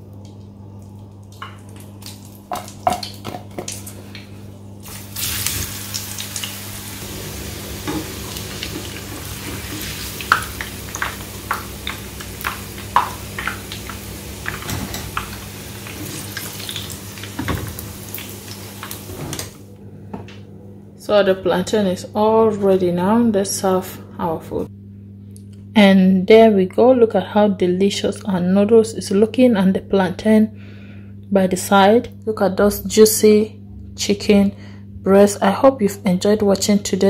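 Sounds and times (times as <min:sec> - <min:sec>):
food sizzling in hot oil: 0:04.8 - 0:19.2.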